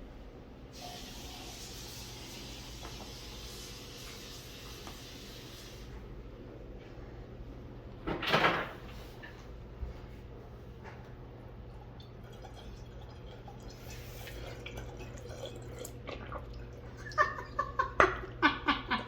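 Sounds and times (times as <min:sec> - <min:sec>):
water pouring into a tank: 0:00.8 - 0:05.6, 0:11.8 - 0:17.4.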